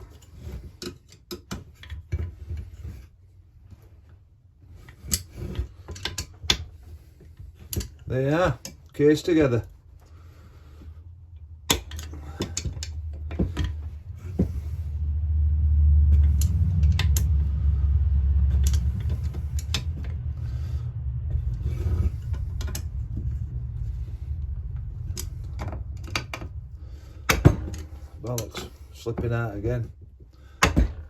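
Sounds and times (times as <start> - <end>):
low rumble: 9.0 - 31.0.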